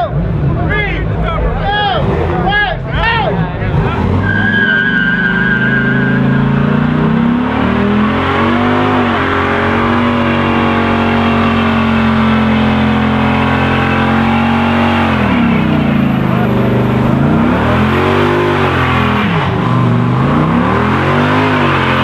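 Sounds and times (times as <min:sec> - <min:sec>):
car engine revving: 0:00.0 - 0:22.0
tyre squeal: 0:04.1 - 0:07.3.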